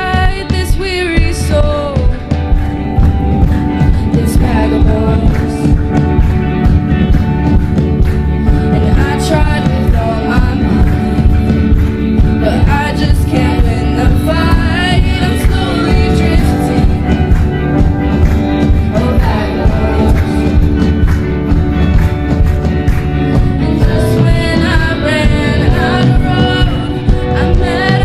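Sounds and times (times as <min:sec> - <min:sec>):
worship band playing: 0:00.0 - 0:28.0
person singing lead: 0:03.8 - 0:06.0, 0:08.5 - 0:17.4, 0:18.7 - 0:20.8, 0:23.4 - 0:28.0.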